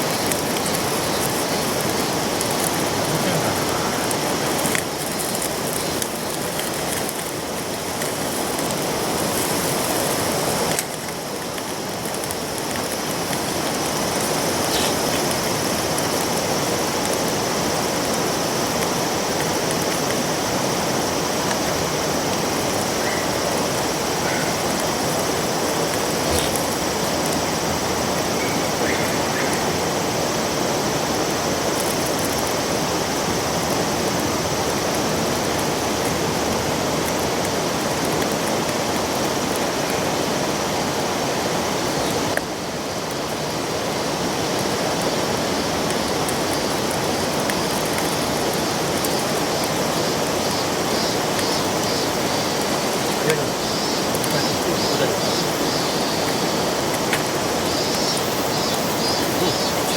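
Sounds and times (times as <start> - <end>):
river water rushing over rocks: 0.0 - 7.2.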